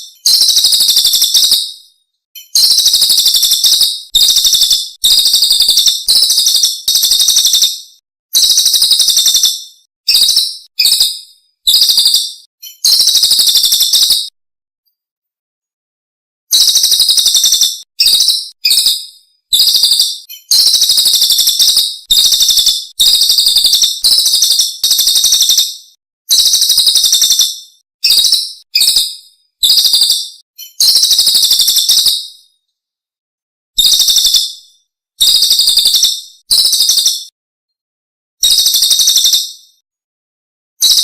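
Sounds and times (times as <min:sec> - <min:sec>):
songbird high-pitched trills: 0:00.0 - 0:01.8, 0:02.4 - 0:14.3, 0:16.5 - 0:25.7, 0:29.6 - 0:32.3.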